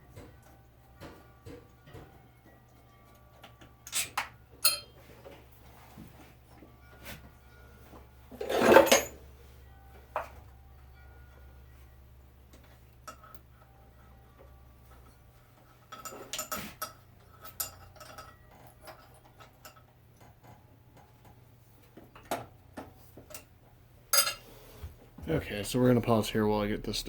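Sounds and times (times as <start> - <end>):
metal tools clinking and rattling: 3.1 - 5.4, 8.3 - 9.2, 12.5 - 13.7, 14.9 - 21.1, 24.1 - 24.5.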